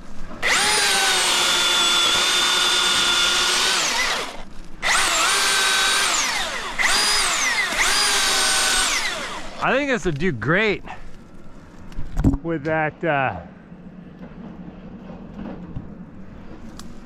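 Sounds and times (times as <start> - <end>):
electric chainsaw whine: 0.4 - 9.8.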